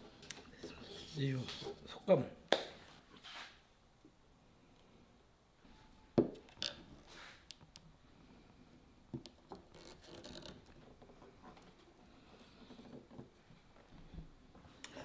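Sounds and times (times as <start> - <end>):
quiet scraping and rubbing: 0.0 - 2.2, 2.9 - 3.7, 6.7 - 7.5, 8.2 - 14.3.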